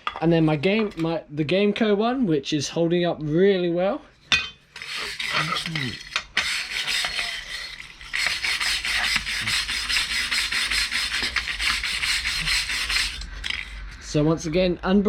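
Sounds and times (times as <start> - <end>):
wire brush scrubbing metal: 4.8 - 13.8.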